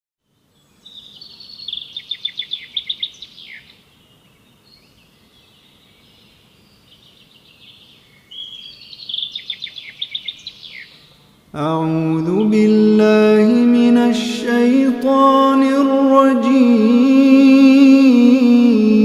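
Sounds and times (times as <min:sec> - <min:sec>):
songbird singing: 0:00.2 - 0:19.0.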